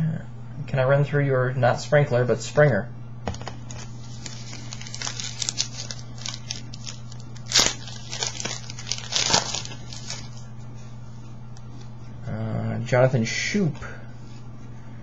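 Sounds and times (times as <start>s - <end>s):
foil wrapper tearing and crinkling: 3.6s - 10.4s.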